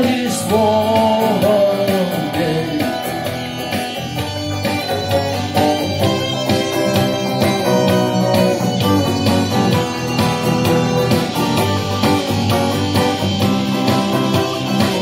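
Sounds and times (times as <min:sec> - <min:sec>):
instrumental guitar music with beat: 0:00.0 - 0:15.0.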